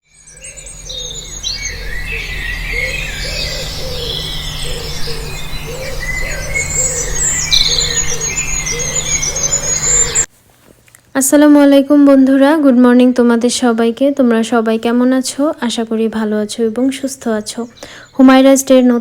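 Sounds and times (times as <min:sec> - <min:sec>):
birds chirping and singing: 0:00.0 - 0:10.3, 0:16.8 - 0:18.8
low repeated bird call: 0:00.0 - 0:10.3.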